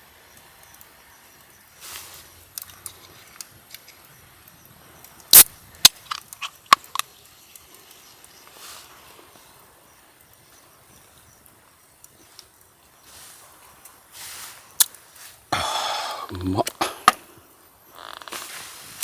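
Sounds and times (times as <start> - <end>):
dry wood snapping: 5.3 - 7.2
faint ticks: 6.2 - 13.0.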